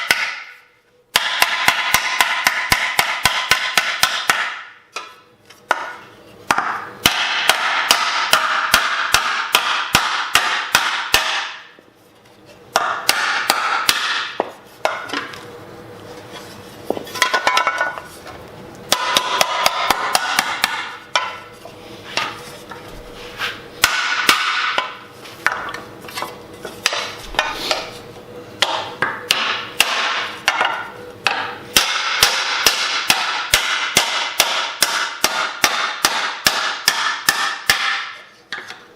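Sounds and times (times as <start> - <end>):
mallet striking sheet metal: 0.0 - 11.8, 12.7 - 15.3, 18.9 - 21.5, 23.8 - 25.8, 28.6 - 38.2.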